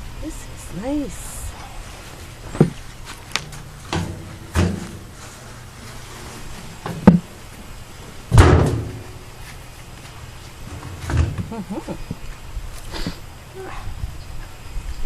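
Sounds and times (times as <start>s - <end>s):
scraping thump: 2.5s - 7.3s, 8.3s - 9.2s.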